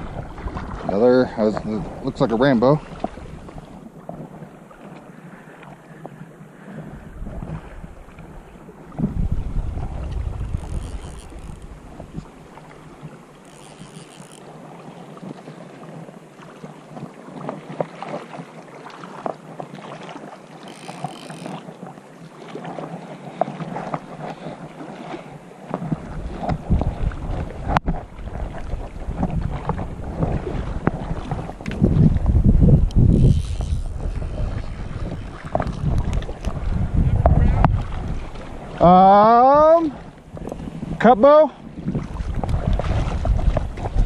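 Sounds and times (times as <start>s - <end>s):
wind buffeting microphone: 0.0s - 4.6s, 6.1s - 15.4s, 22.7s - 44.0s
rushing river water: 0.0s - 44.0s.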